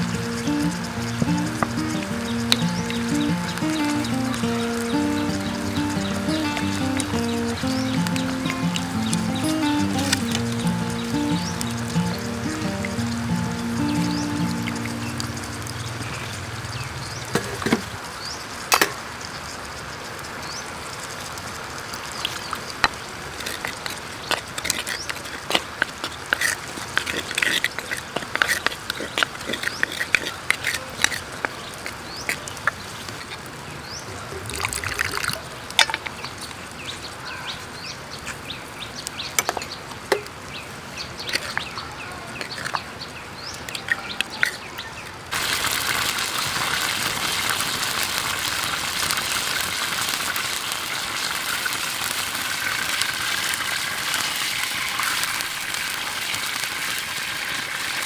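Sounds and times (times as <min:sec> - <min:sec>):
small bird chirps: 0:00.0 - 0:17.3
creek water over rocks: 0:00.0 - 0:36.7, 0:43.8 - 0:58.0.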